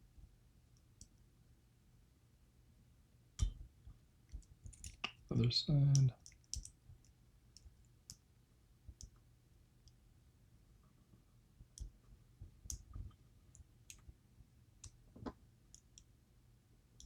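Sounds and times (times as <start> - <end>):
small metal clicks and taps: 4.3 - 5.2, 5.9 - 8.2.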